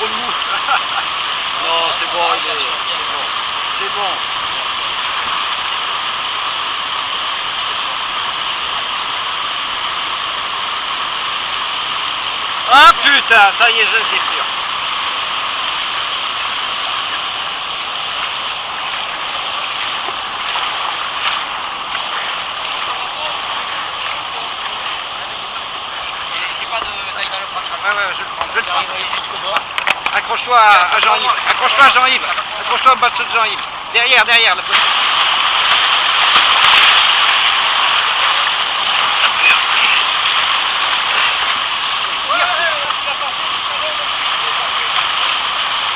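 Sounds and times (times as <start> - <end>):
rushing whitewater rapids: 0.0 - 45.9.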